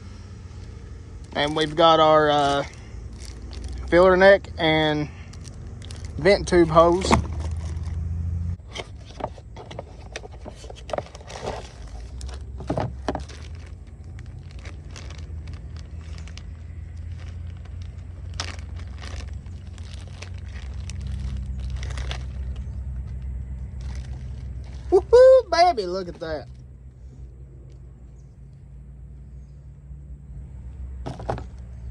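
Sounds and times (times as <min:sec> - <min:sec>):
parts clicking and scraping: 0:00.0 - 0:25.0, 0:30.6 - 0:31.9
steady low hum: 0:00.0 - 0:31.9
packaging rustling: 0:00.6 - 0:04.4, 0:05.1 - 0:08.0, 0:08.6 - 0:24.9.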